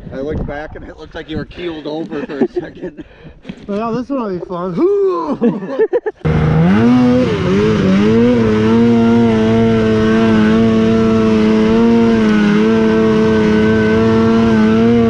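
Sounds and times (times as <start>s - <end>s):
snowmobile engine revving high: 6.2s - 15.0s.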